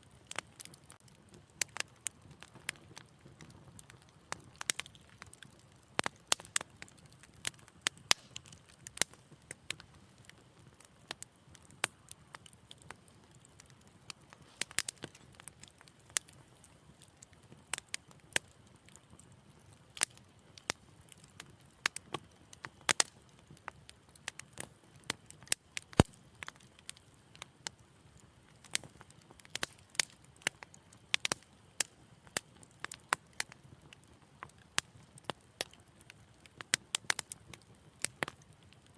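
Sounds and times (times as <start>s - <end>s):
low rumble of flames: 0.0s - 38.9s
wood fire crackling: 0.0s - 38.9s.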